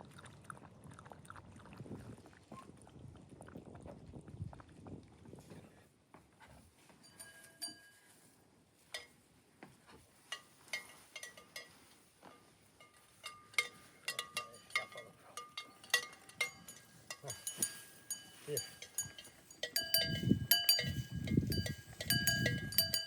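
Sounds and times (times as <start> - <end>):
livestock bells clinking: 7.0 - 8.4, 10.2 - 23.0.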